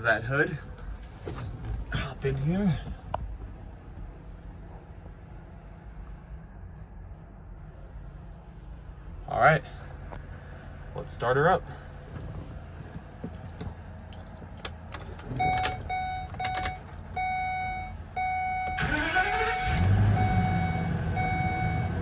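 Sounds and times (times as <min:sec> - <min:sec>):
car engine idling: 0:18.0 - 0:22.0
starter cranking with rising whine: 0:18.8 - 0:21.8.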